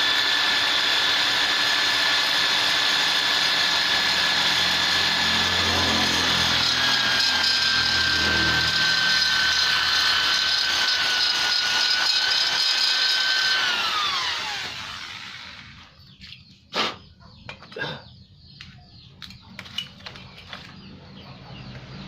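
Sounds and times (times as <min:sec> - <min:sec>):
grinding metal: 0:00.0 - 0:16.1
rotary grinder whine: 0:00.0 - 0:16.1.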